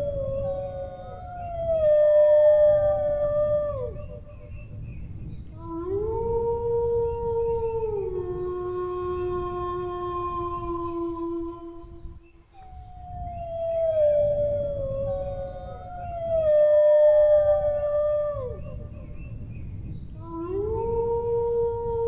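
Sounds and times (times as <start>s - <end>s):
dog howling: 0.0s - 4.2s, 12.8s - 19.2s.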